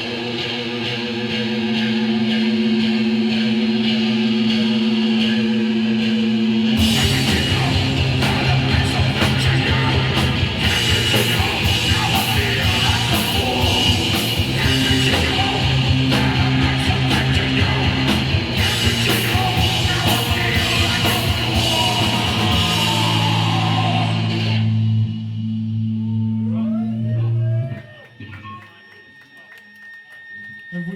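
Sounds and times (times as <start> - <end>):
punk band playing live: 0.0 - 25.9
shouted vocals: 6.8 - 24.6.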